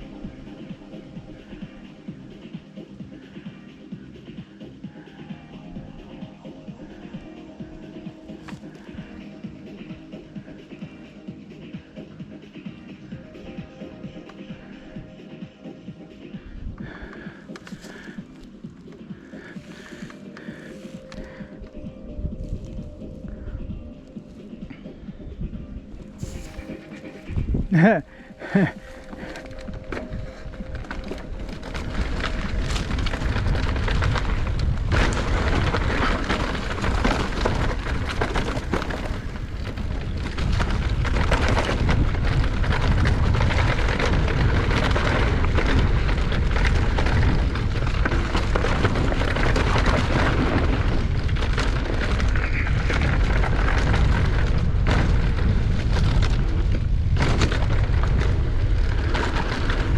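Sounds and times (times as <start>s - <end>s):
mountain bike rumbling and rattling: 0.0s - 59.9s
wind buffeting microphone: 19.1s - 59.9s.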